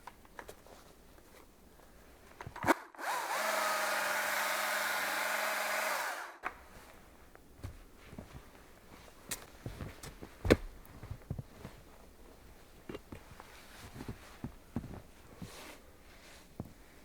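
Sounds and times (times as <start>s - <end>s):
electric drill motor running: 3.0s - 6.4s.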